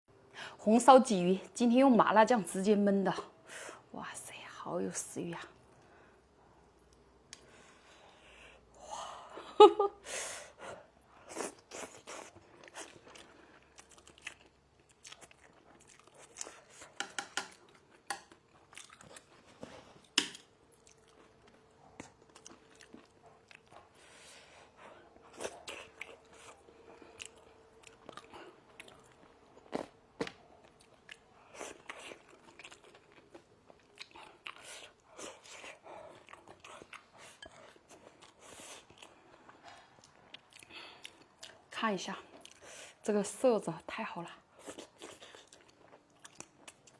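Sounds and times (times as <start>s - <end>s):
person chewing and biting: 11.4s - 23.9s, 25.2s - 39.2s.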